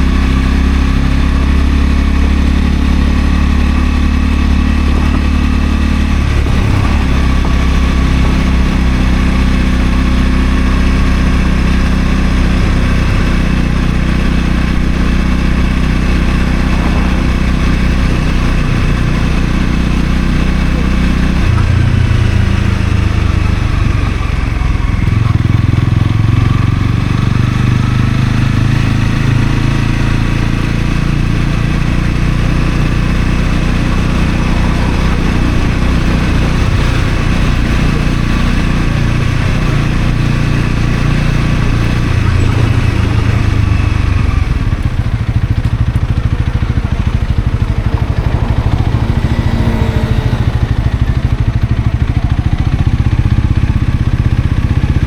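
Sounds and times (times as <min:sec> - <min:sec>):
motorcycle engine running: 0:00.0 - 0:55.0
wind and road rush: 0:00.0 - 0:55.0.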